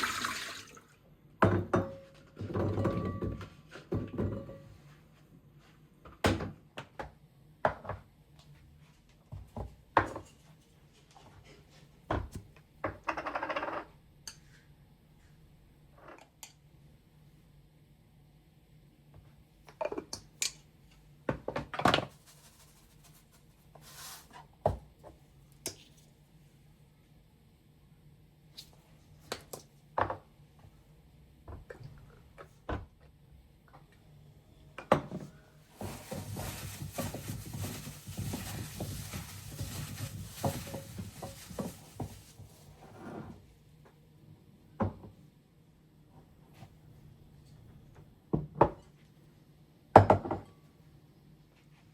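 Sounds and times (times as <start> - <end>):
soft rustle: 22.1 - 24.5, 35.7 - 43.0.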